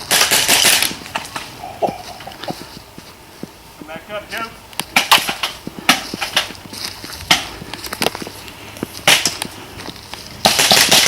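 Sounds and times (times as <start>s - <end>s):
airsoft guns firing: 0.0s - 1.4s, 4.9s - 6.4s, 10.4s - 11.0s
pellets striking: 4.9s - 6.6s, 9.0s - 9.5s, 10.4s - 11.0s.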